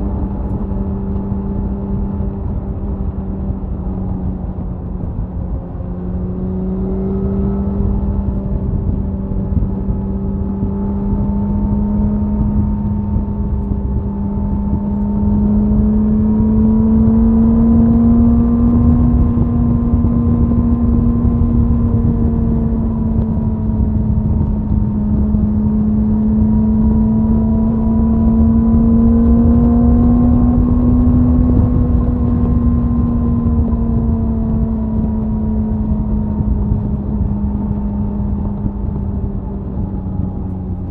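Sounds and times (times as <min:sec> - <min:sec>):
motorcycle engine droning: 0:00.0 - 0:40.9
wind rush on microphone: 0:00.0 - 0:40.9.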